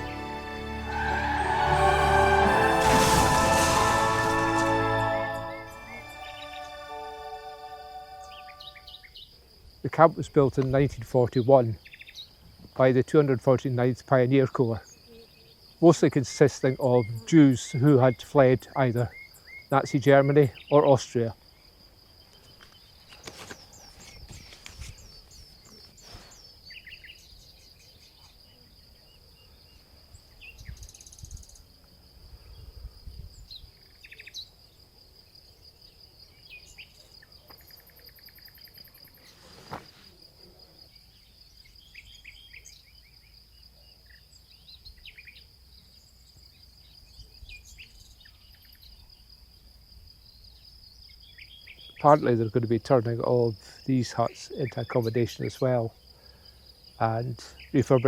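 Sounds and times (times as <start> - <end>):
bird chirps: 8.0 - 9.3, 22.2 - 31.6, 41.1 - 43.3, 50.5 - 52.3.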